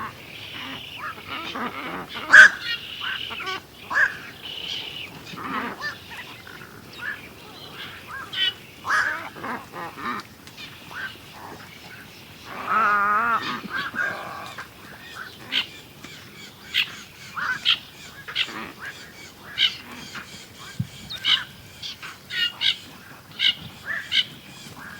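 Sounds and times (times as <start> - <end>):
birds chirping: 0.0 - 24.9
loud wavering bird call: 2.2 - 4.9.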